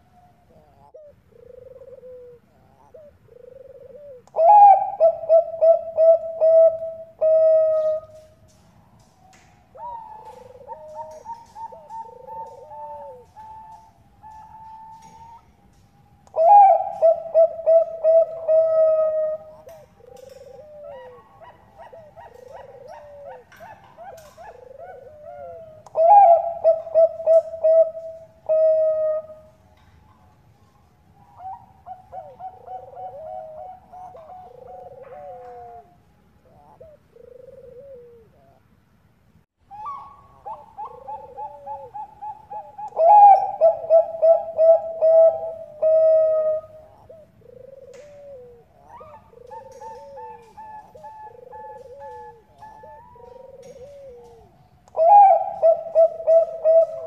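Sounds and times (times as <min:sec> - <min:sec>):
loud rattling dove coos: 0:00.0 - 0:29.9, 0:31.4 - 0:38.6, 0:39.7 - 0:57.0
quiet overlapping dove cooing: 0:00.0 - 0:38.8, 0:39.7 - 0:57.0.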